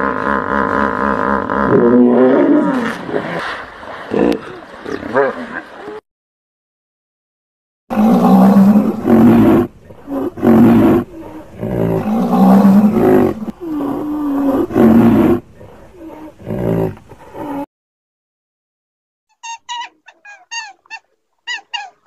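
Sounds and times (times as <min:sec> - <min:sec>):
large animal calling: 0:19.3 - 0:22.0.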